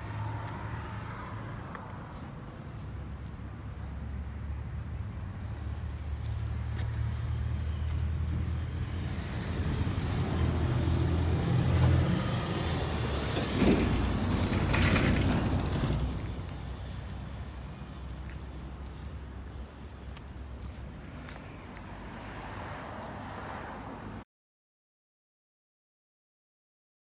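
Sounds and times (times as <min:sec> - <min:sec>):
diesel truck engine rumbling: 0:08.4 - 0:20.7.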